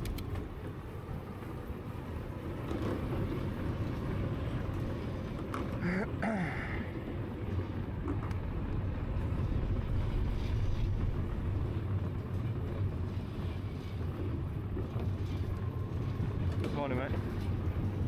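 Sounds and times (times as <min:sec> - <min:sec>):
tyres rolling on path: 0:00.0 - 0:18.0
wind buffeting microphone: 0:06.9 - 0:16.6.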